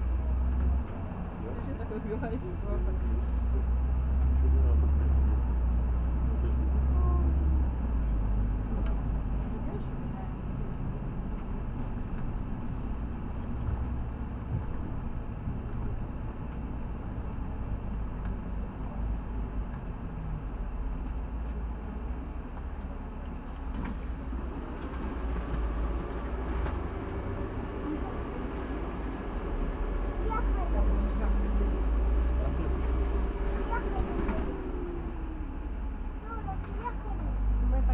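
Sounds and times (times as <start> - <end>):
bus engine and road rumble: 0.0 - 37.9.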